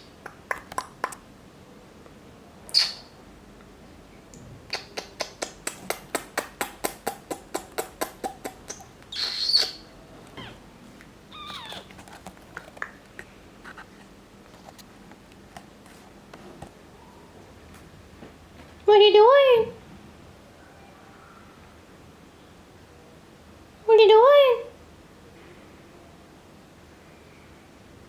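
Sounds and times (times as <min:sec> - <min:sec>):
parrot whistles and chirps: 0:02.7 - 0:03.2, 0:09.1 - 0:10.6
parrot clicking calls: 0:04.7 - 0:10.6, 0:11.3 - 0:13.3
parrot shrill screech: 0:11.3 - 0:11.9.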